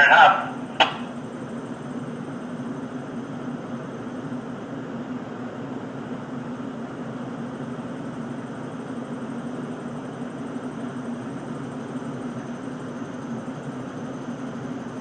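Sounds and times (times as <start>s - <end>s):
ship engines droning: 0.0s - 1.6s.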